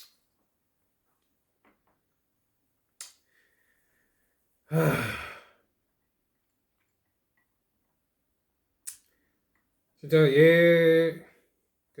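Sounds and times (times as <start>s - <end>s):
man sighing: 4.7s - 5.6s.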